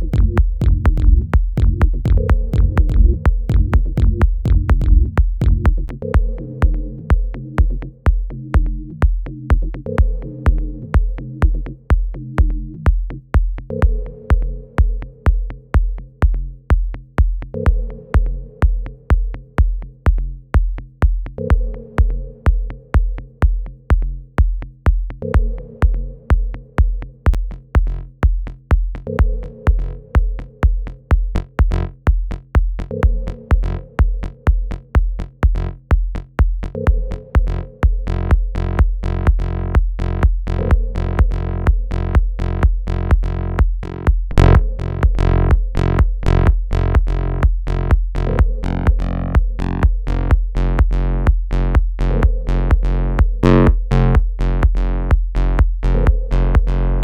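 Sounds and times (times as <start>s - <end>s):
electronic dance music: 44.3s - 47.4s.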